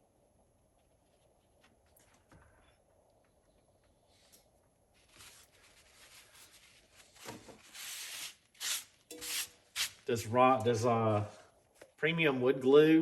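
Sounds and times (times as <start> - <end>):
hands rubbing and scraping: 4.9 - 10.0.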